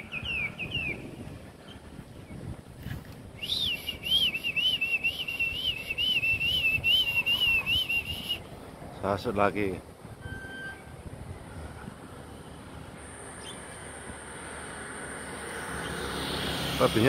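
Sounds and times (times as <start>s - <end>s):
songbird whistling: 0.0s - 1.2s, 3.4s - 8.5s.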